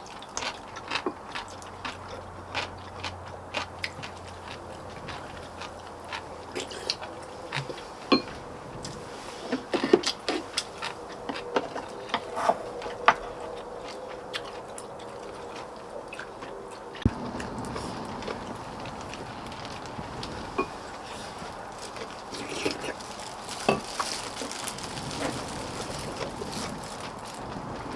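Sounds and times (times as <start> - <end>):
faint steady hum: 0.0 - 27.9
people chewing: 0.0 - 27.9.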